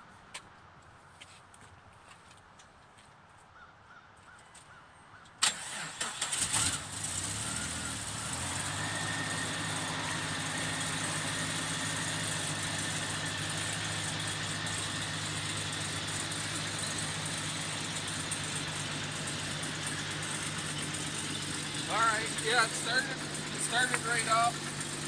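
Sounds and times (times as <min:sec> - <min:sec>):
car engine idling: 0:05.4 - 0:25.0.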